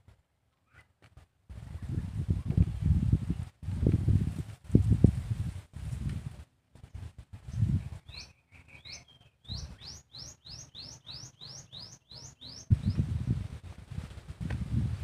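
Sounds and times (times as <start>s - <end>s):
bird singing quick rising notes: 7.5s - 13.1s.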